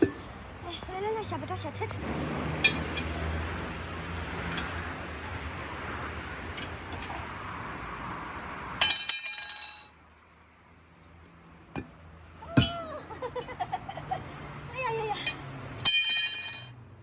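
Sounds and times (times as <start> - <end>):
metal or glass objects clattering: 15.8 - 16.9.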